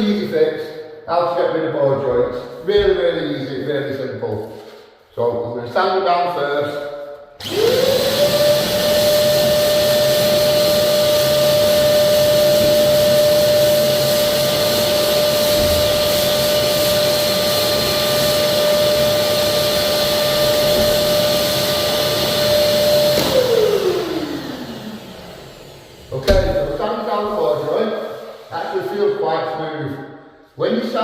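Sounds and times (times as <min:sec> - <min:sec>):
electric sander motor whine: 0:07.4 - 0:13.8, 0:17.2 - 0:26.0.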